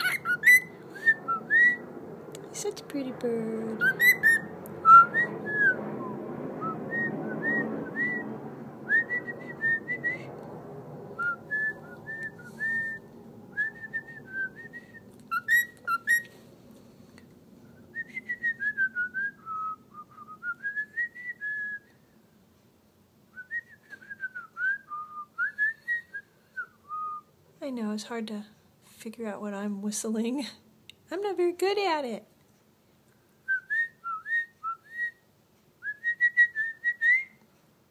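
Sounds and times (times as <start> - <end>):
cockatiel chirping: 0.0 - 0.7, 3.8 - 4.4, 15.3 - 16.3.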